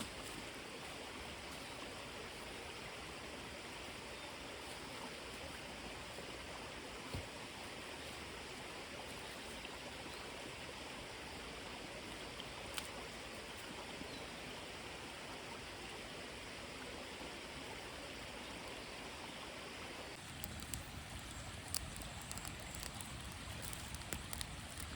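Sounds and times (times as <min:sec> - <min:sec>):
small stream rushing: 0:00.0 - 0:24.9
faint clicks: 0:20.3 - 0:24.9.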